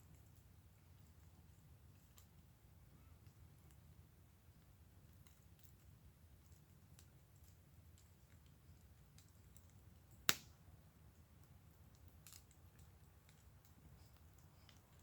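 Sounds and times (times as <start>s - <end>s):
wood fire crackling: 0.0s - 15.0s
fire pop: 10.2s - 10.6s.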